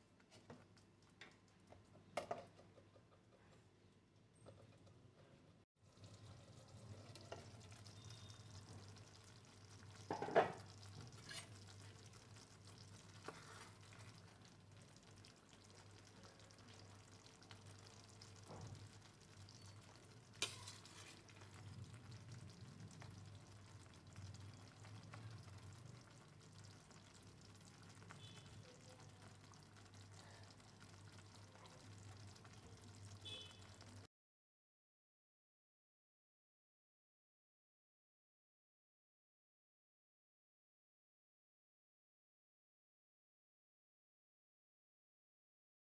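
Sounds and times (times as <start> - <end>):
curry sizzling in a pan: 5.8 - 34.1.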